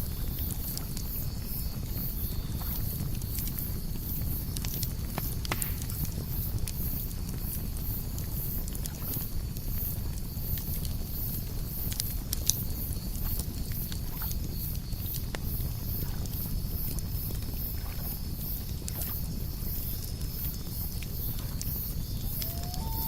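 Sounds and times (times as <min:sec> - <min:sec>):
campfire crackling and popping: 0:02.8 - 0:23.0
crickets chirping: 0:15.6 - 0:23.0
high insect trill: 0:21.8 - 0:23.0.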